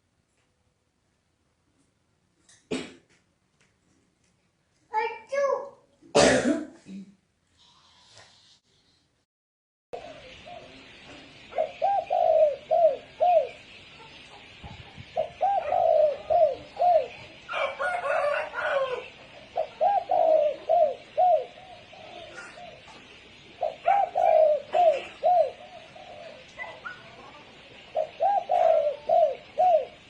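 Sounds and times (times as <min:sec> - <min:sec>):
dove cooing: 0:10.0 - 0:30.0.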